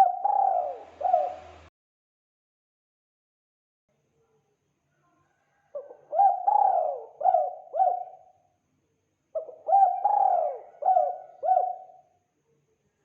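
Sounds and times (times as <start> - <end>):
dove cooing: 0.0 - 1.7, 5.7 - 8.4, 9.4 - 12.1.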